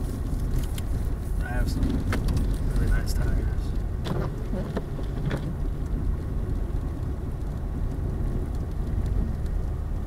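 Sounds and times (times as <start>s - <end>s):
car engine and tyres on snow: 0.0s - 10.0s.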